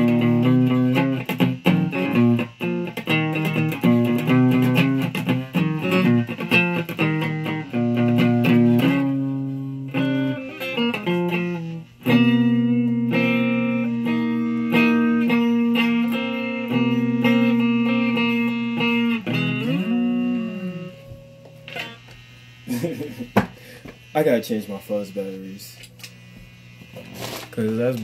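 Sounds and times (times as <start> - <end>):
electric guitar lead line: 0.0 - 26.8.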